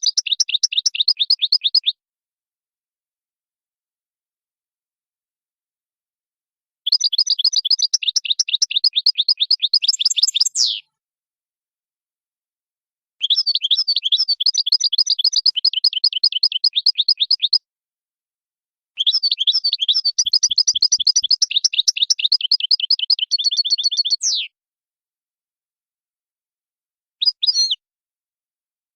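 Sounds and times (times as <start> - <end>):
goldfinch singing: 0.0 - 2.0, 6.9 - 10.9, 13.2 - 17.6, 19.0 - 24.5.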